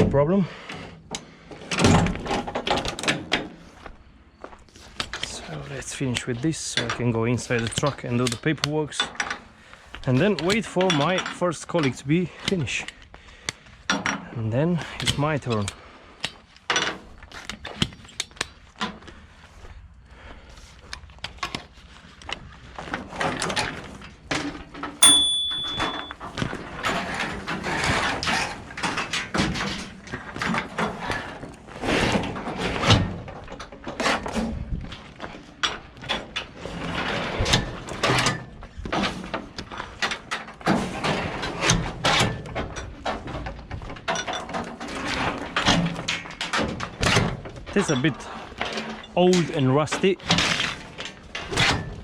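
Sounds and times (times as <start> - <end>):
metal equipment clanking and scraping: 35.3 - 52.0.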